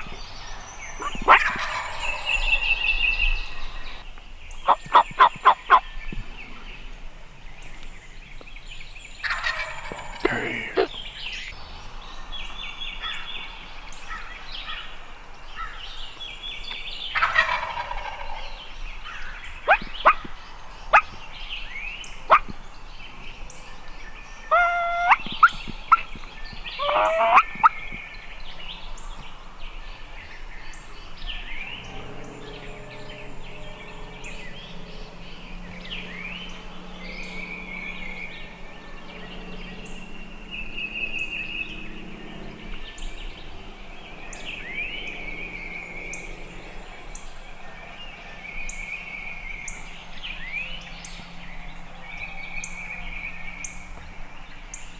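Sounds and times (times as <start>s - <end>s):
low steady hum: 0.0s - 54.9s
small birds chirping: 0.0s - 54.9s
turkey gobbling: 1.0s - 2.7s, 4.7s - 5.8s, 9.2s - 10.4s, 17.2s - 18.6s, 24.5s - 26.1s, 26.8s - 27.8s.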